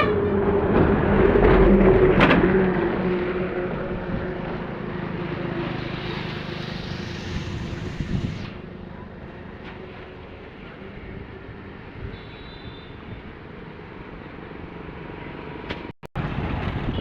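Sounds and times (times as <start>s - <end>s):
motor vehicle passing: 0.4s - 8.7s
hiss: 5.8s - 8.6s.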